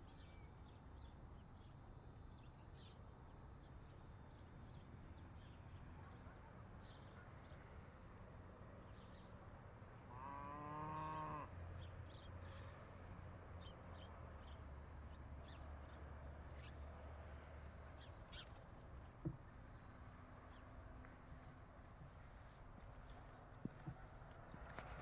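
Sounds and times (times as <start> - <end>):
cow mooing: 10.1 - 11.5.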